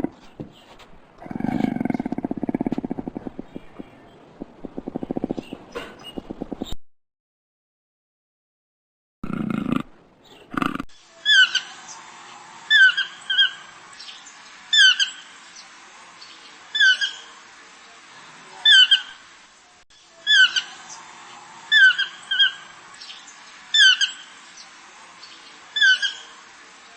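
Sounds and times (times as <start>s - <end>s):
toucan yelping call: 11.2s - 11.8s, 12.7s - 13.7s, 14.7s - 15.3s, 18.6s - 19.2s, 20.2s - 20.9s, 21.7s - 22.8s, 23.7s - 24.4s, 25.8s - 26.4s.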